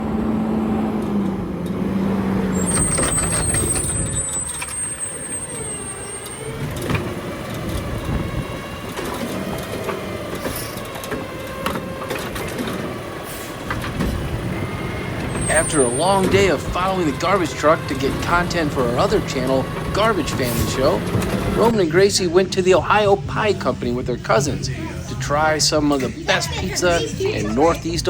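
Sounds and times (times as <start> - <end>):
diesel engine rumbling: 0.0 - 28.0
thin high squeal: 2.5 - 6.6.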